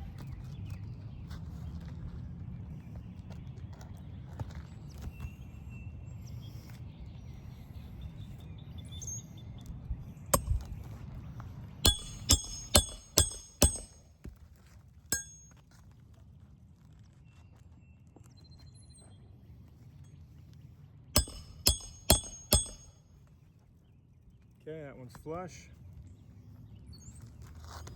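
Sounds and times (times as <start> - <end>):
hammer striking metal: 10.4 - 10.7, 11.9 - 14.0, 15.1 - 15.5, 21.2 - 22.9.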